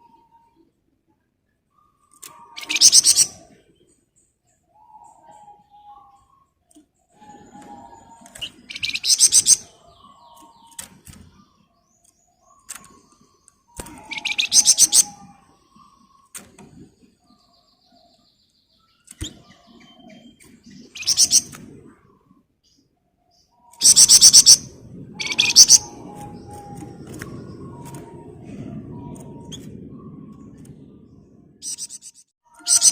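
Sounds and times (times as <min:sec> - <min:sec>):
soft bird chirping: 0:00.0 - 0:32.9
songbird rapid trills: 0:02.0 - 0:03.4, 0:08.2 - 0:11.5, 0:13.7 - 0:15.9, 0:19.0 - 0:21.7.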